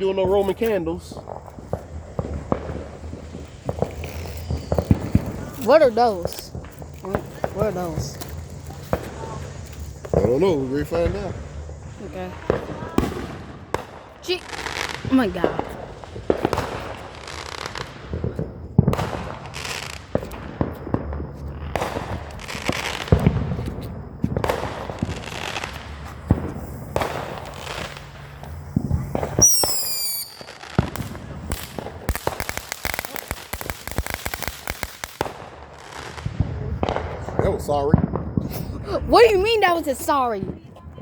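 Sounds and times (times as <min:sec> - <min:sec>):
firework crackle: 0:00.0 - 0:41.0
firework pops and bangs: 0:00.0 - 0:41.0
firework whistle falling: 0:03.7 - 0:11.4, 0:25.7 - 0:31.6.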